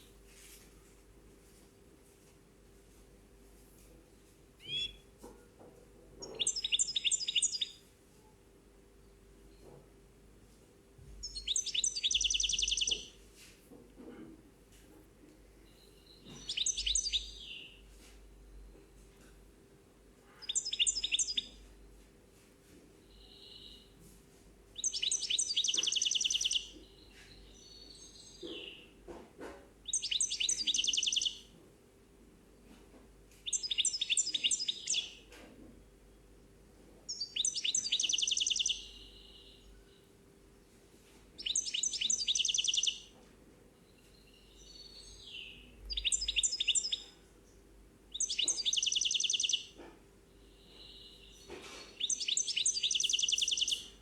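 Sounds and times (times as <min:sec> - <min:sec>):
songbird trilling: 0:04.6 - 0:05.0, 0:06.2 - 0:07.8, 0:11.2 - 0:13.1, 0:16.3 - 0:17.8, 0:20.4 - 0:21.6, 0:24.8 - 0:26.8, 0:29.9 - 0:31.4, 0:33.5 - 0:35.2, 0:37.1 - 0:39.6, 0:41.4 - 0:43.1, 0:44.7 - 0:47.1, 0:48.1 - 0:49.8, 0:52.0 - 0:54.0
soft slurred bird notes: 0:11.2 - 0:13.2, 0:24.8 - 0:27.0, 0:29.9 - 0:31.4, 0:41.4 - 0:43.1, 0:44.0 - 0:47.2, 0:48.1 - 0:49.8, 0:50.4 - 0:54.0.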